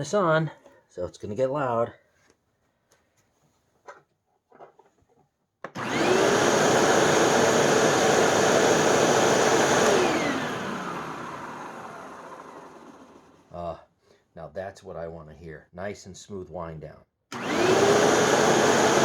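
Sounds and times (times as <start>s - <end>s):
upright vacuum cleaner running: 5.7s - 13.5s, 17.3s - 19.0s.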